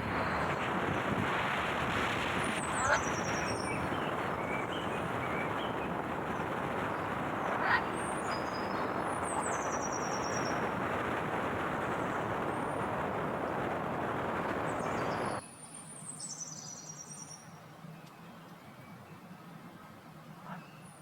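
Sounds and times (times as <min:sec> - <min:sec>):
vehicle road and engine noise: 0:00.0 - 0:15.4
high bird calls: 0:02.5 - 0:10.7.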